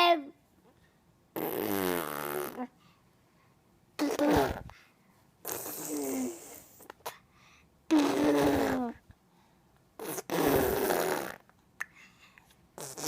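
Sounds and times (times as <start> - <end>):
child making silly vocal noises: 4.0 - 4.7, 5.5 - 6.7, 7.9 - 9.0.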